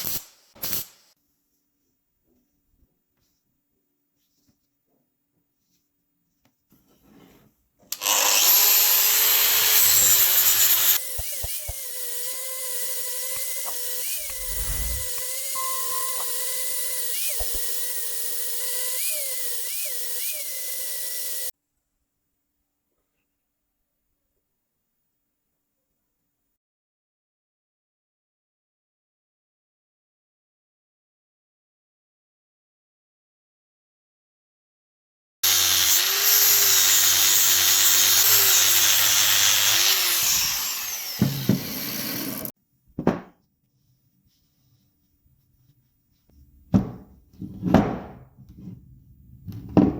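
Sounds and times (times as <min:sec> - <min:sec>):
power tool motor whining: 0:07.9 - 0:21.5, 0:35.4 - 0:42.5.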